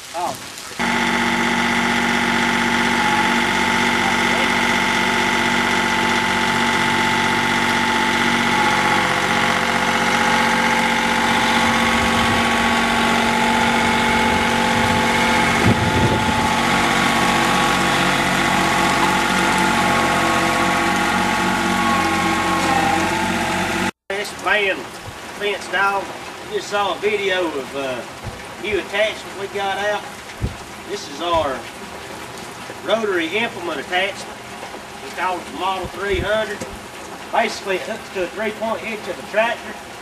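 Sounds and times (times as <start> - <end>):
low rumble: 0.8 - 23.9
tractor engine running: 0.8 - 24.0.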